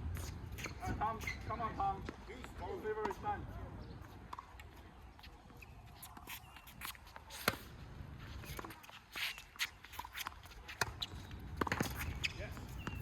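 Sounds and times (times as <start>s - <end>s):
racket striking ball: 10.8s - 12.2s
ball bouncing on court: 10.8s - 13.0s.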